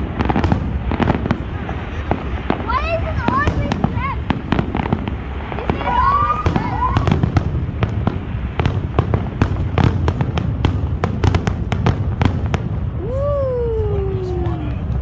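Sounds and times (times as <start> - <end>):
fireworks bangs and cracks: 0.0 - 15.0
low rumble: 12.6 - 15.0
long falling tone: 13.0 - 15.0.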